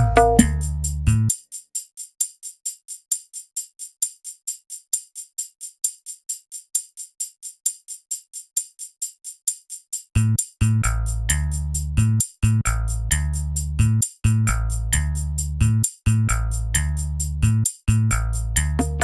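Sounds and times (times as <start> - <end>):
tambourine jingling: 0.0 - 19.0.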